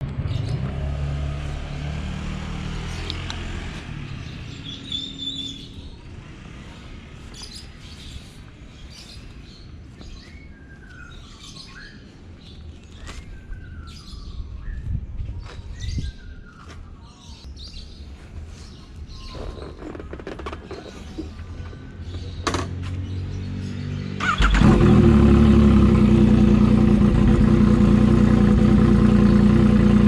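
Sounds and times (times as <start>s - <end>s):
birds chirping: 1.4s - 29.9s
motorcycle engine running at low revs: 24.0s - 30.0s.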